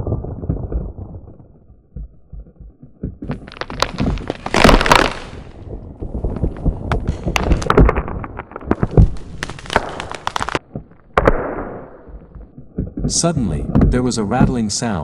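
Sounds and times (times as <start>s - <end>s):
heavy thuds: 2.0s - 14.9s
bones rattling and cracking: 2.2s - 11.4s.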